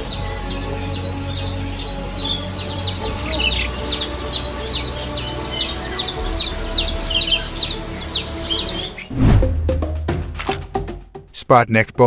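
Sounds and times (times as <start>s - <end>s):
small birds chirping: 0.0s - 9.1s
background music with sustained notes: 0.0s - 11.4s.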